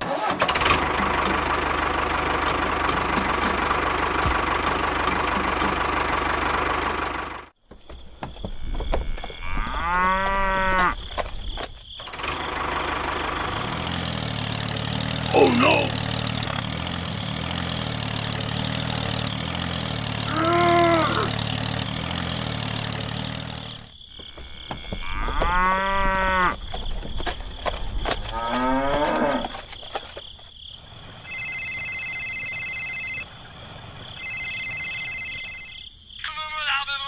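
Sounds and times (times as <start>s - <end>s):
tractor engine running: 0.0s - 35.7s
cow mooing: 9.1s - 11.0s, 20.1s - 21.5s, 24.9s - 26.6s, 28.3s - 29.6s
phone ringtone: 31.2s - 33.3s, 34.2s - 35.8s.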